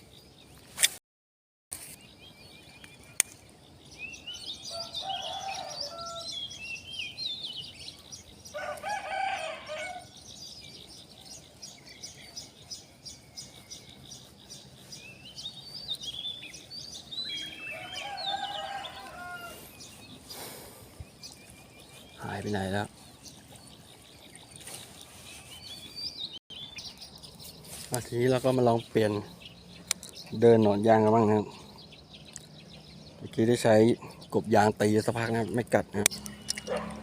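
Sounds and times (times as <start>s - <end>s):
small birds chirping: 0.0s - 1.0s, 1.8s - 37.0s
rooster crowing: 4.4s - 6.5s, 8.5s - 10.2s, 17.3s - 19.9s.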